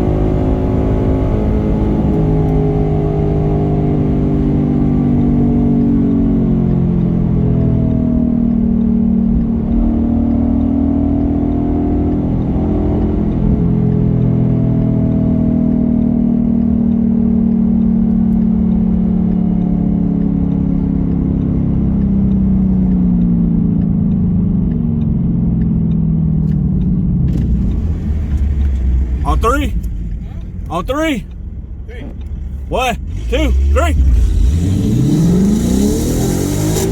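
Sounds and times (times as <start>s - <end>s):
car engine droning: 25.8s - 36.9s.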